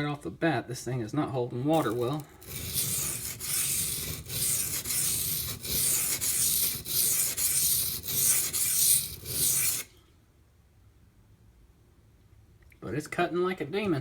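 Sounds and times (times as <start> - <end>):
knife rasping on water stone: 1.8 - 9.9.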